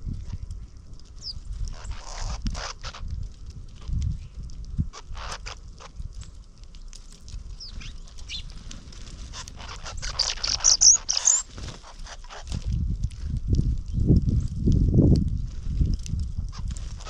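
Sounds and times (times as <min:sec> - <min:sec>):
small birds chirping: 0:00.0 - 0:12.8.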